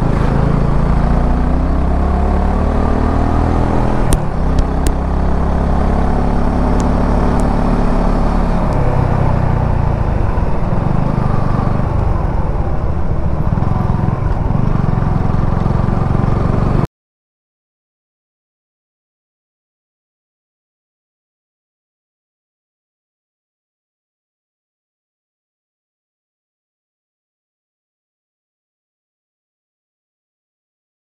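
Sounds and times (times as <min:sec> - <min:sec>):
motorcycle engine running: 0:00.0 - 0:16.9
road and wind noise: 0:00.0 - 0:16.9.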